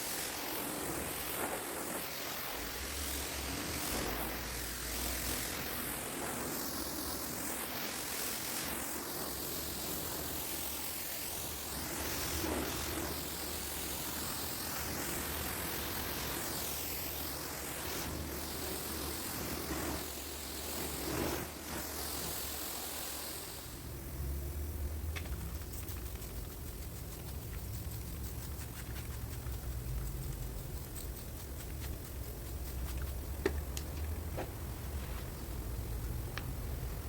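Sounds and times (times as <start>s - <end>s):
pressure washer water jet hiss: 0.0s - 37.0s
low motor hum: 23.9s - 37.0s.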